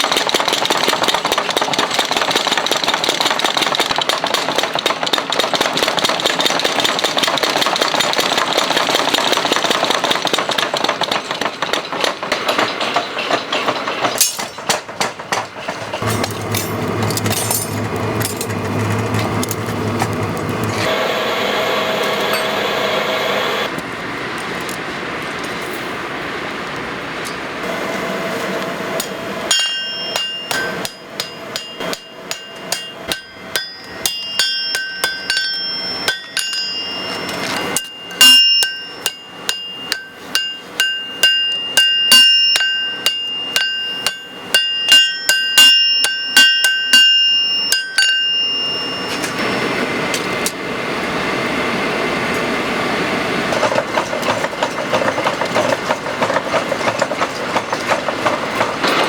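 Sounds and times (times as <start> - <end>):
noisy machine running: 0.0 - 59.0
hammer striking steel on anvil: 9.4 - 18.6, 29.0 - 49.4.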